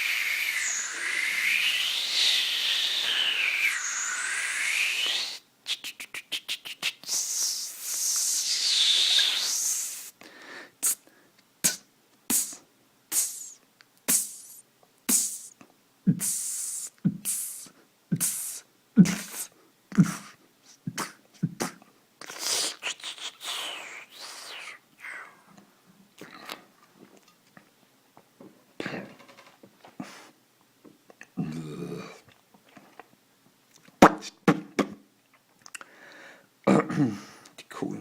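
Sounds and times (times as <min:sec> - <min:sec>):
mouth clicks: 0:00.0 - 0:10.1, 0:10.8 - 0:26.6
beatboxing: 0:00.0 - 0:10.2, 0:10.8 - 0:25.2
wavering hissing noise: 0:00.0 - 0:10.2, 0:10.8 - 0:25.6.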